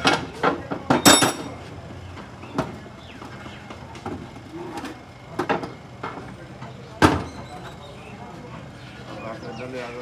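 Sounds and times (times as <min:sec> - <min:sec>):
sharp metallic clink: 0:01.0 - 0:01.6.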